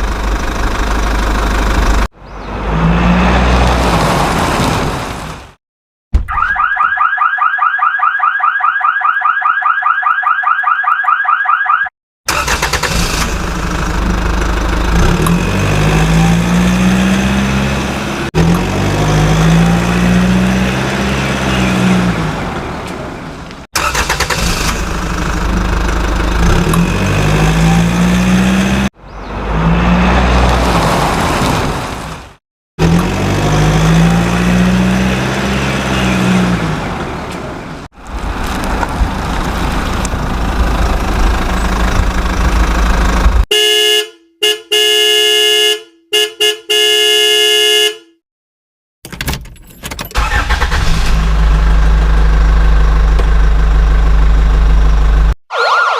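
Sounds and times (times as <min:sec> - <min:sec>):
toy warbling siren tone: 0:06.3 - 0:11.9, 0:55.5 - 0:55.9.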